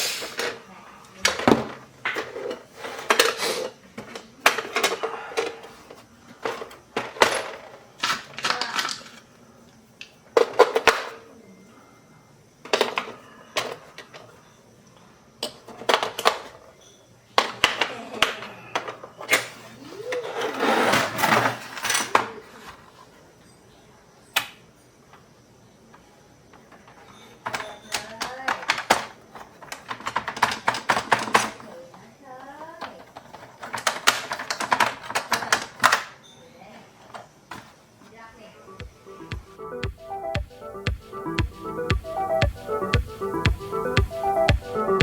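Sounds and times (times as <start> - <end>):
plastic parts clicking and rattling: 26.6 - 31.6, 32.8 - 36.1.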